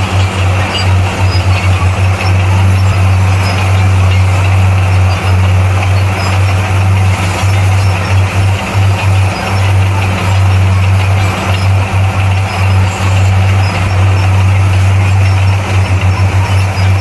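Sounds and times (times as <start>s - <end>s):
bulldozer diesel engine droning: 0.0s - 17.0s.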